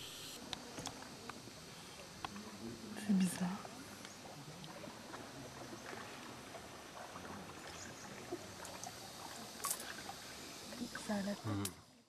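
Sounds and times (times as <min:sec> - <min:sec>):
water lapping around canoe: 0:00.4 - 0:11.6
small clicks and drips: 0:03.3 - 0:11.8.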